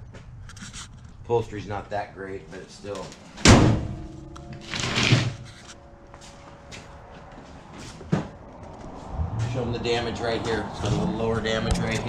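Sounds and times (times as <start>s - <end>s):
car door slamming shut: 3.4s - 4.0s.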